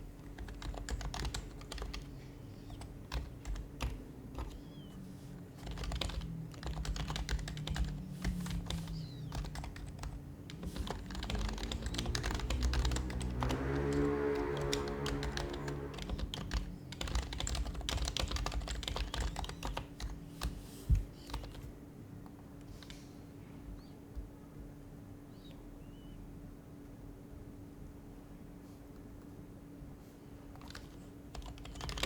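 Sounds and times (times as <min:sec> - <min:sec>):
fast keyboard typing: 0:00.0 - 0:04.9, 0:05.6 - 0:21.7, 0:30.6 - 0:32.0
pitched droning sound: 0:10.9 - 0:16.5.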